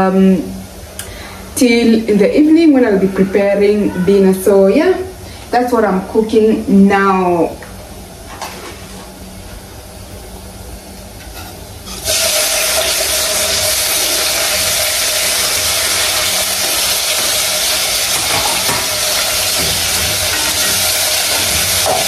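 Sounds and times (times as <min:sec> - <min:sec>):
tomatoes sizzling in a frying pan: 0:11.8 - 0:22.0.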